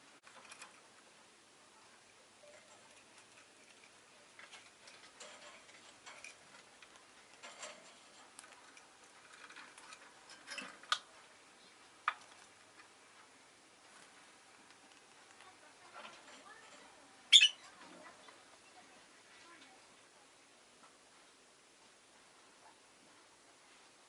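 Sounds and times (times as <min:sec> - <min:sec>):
lovebirds clicking and tapping: 0:02.4 - 0:13.3, 0:14.6 - 0:18.4.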